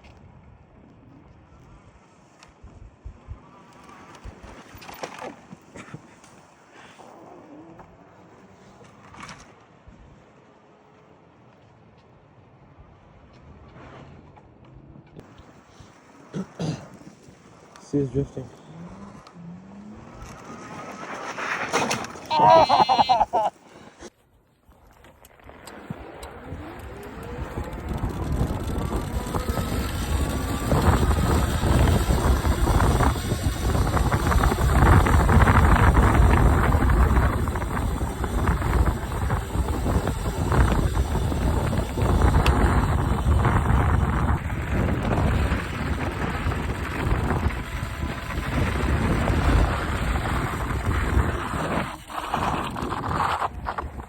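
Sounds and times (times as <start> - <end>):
vehicle engine accelerating: 18.2 - 21.5, 25.4 - 53.2
wind buffeting microphone: 25.8 - 54.0.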